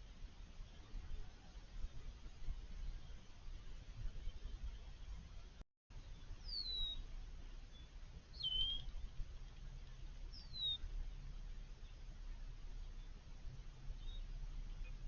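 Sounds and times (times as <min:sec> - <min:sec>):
faint low outdoor rumble: 0:00.0 - 0:15.0
bird chirping: 0:06.0 - 0:13.2, 0:13.8 - 0:15.0.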